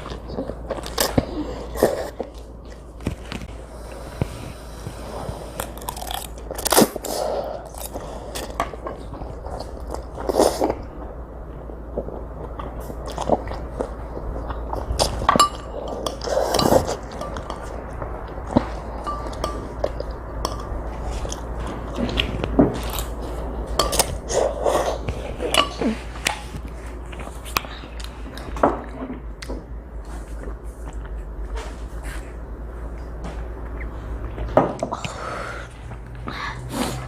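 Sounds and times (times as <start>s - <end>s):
utensils clinking against bowl: 15.2s - 17.8s, 18.5s - 21.4s, 23.7s - 26.0s.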